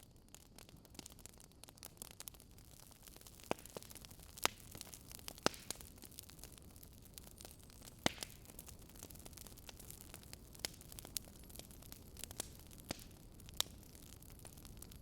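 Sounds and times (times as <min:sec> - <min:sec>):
wood logs crackling and popping: 0:00.0 - 0:15.0.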